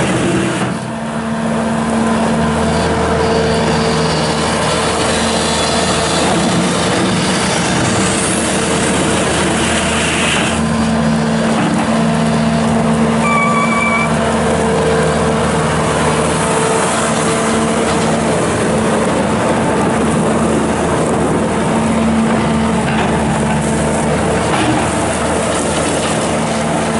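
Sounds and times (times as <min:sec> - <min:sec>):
diesel engine running under load: 0:00.0 - 0:26.9
short beep: 0:13.2 - 0:14.1.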